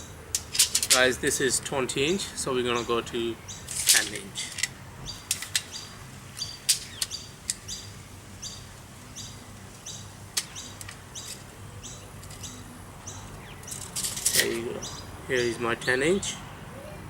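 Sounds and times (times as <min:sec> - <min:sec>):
small bird chirping: 0:05.1 - 0:16.0.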